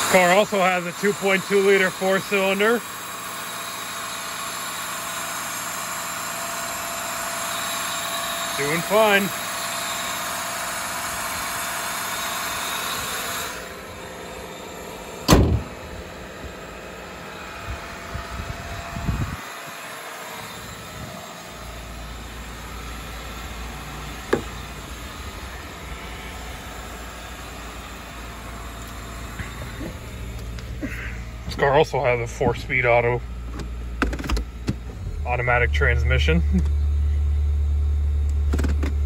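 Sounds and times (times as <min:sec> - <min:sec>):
car engine idling: 0:00.0 - 0:39.0
car hood slamming shut: 0:15.2 - 0:15.9, 0:24.3 - 0:24.6.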